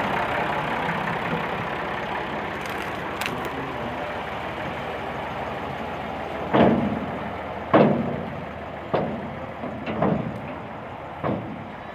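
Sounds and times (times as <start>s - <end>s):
tractor engine running: 0.0s - 11.9s.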